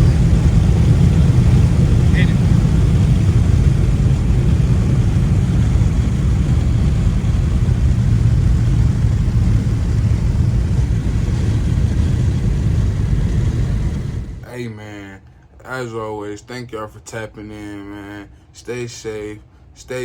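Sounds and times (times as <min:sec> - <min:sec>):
car engine rumble: 0:00.0 - 0:14.4
road noise: 0:00.0 - 0:14.4.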